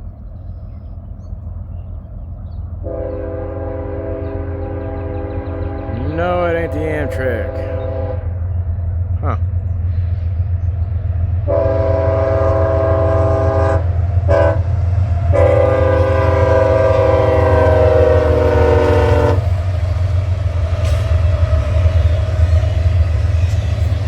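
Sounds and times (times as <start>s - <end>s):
train rumble: 0.0s - 24.0s
locomotive air horn: 2.8s - 8.3s, 11.5s - 14.7s, 15.3s - 19.6s.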